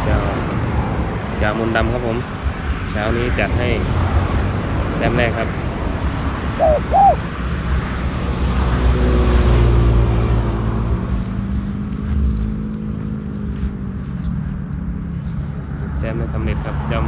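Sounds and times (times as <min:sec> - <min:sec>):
vehicle engine hum passing: 0:00.0 - 0:17.0
dove cooing: 0:06.6 - 0:07.2.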